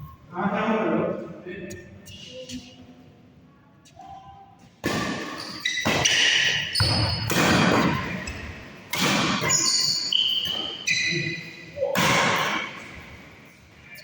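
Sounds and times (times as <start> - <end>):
racket hitting shuttlecock: 4.8 - 10.8, 11.9 - 12.9
shoes squeaking on court floor: 4.9 - 11.8.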